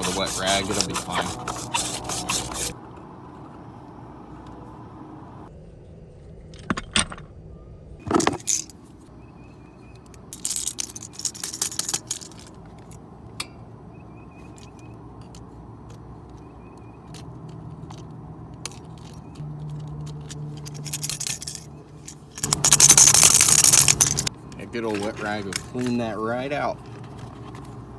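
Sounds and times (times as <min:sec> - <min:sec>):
metal hand tools clinking: 0:00.0 - 0:02.7, 0:10.4 - 0:12.5, 0:19.8 - 0:24.3.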